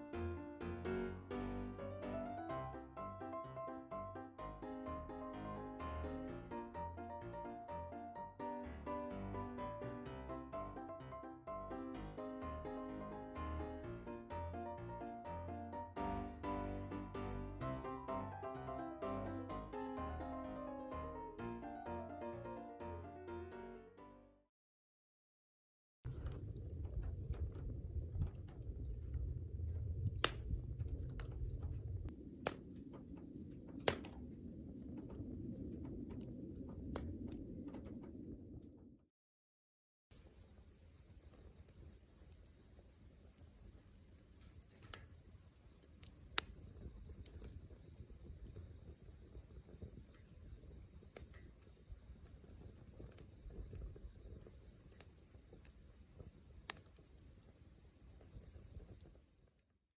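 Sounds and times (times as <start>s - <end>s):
low rumble of flames: 0.0s - 22.6s, 26.1s - 39.1s, 40.2s - 59.8s
wood fire crackling and popping: 26.1s - 38.9s, 40.2s - 59.8s.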